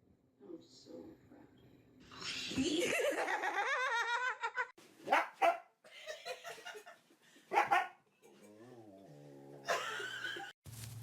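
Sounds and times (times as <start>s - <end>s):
dog barking: 5.0s - 5.8s, 7.5s - 8.0s.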